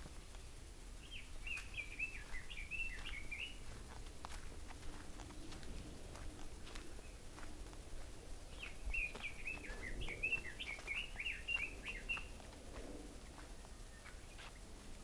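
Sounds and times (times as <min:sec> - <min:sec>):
faint footsteps on dirt path: 0:00.0 - 0:15.0
songbird twittering: 0:00.4 - 0:03.9, 0:08.4 - 0:14.6.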